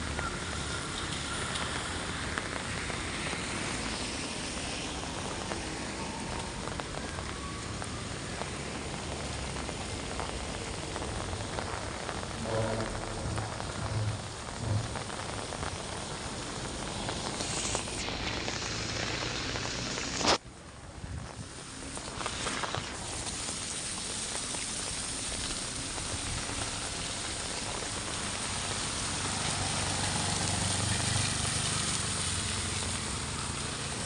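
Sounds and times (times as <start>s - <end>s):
heavy rain falling: 0.0s - 34.0s
low thumps: 12.4s - 15.4s.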